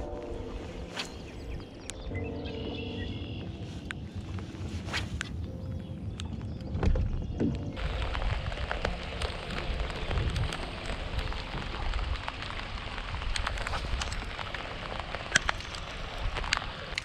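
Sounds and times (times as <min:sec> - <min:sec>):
low rumble: 0:00.0 - 0:16.9
raindrop ticks: 0:06.1 - 0:17.0
rain falling: 0:07.5 - 0:17.0.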